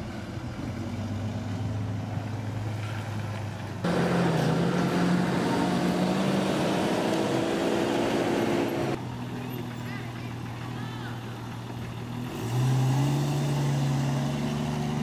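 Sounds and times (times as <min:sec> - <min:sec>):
car driving off: 0:00.0 - 0:15.0
car engine running: 0:03.8 - 0:12.3.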